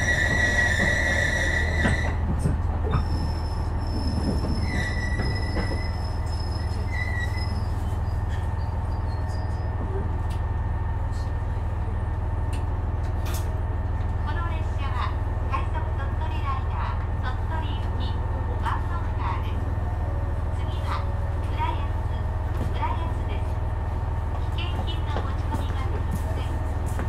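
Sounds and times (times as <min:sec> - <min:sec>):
high-pitched squeals: 0:00.0 - 0:02.2, 0:03.0 - 0:09.8
diesel railcar humming: 0:00.0 - 0:27.0.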